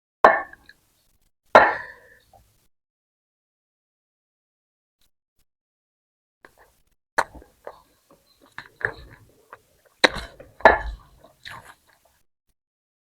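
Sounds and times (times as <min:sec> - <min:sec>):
mouth clicks: 0:06.5 - 0:12.1
chewing: 0:06.5 - 0:12.2.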